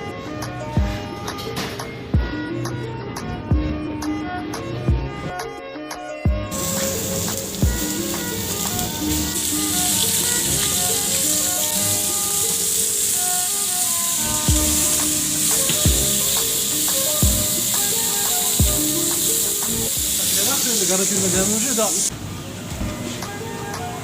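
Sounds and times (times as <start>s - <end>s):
background music: 0.0s - 24.0s
food sizzling in hot pan: 6.5s - 22.1s.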